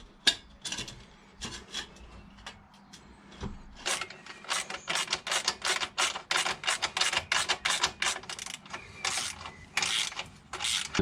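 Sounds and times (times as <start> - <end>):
hand tool ratcheting: 3.8 - 11.0.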